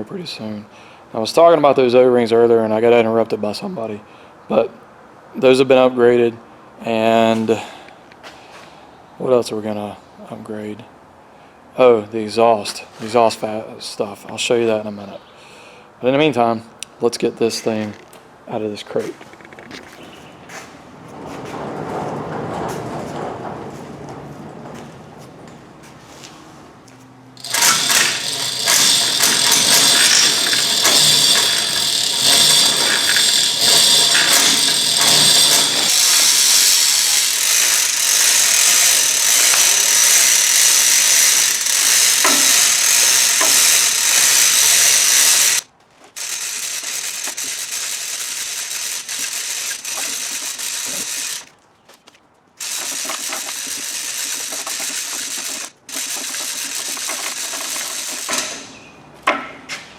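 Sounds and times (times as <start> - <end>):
power drill running: 27.4 - 45.6, 46.2 - 51.5, 52.6 - 58.8.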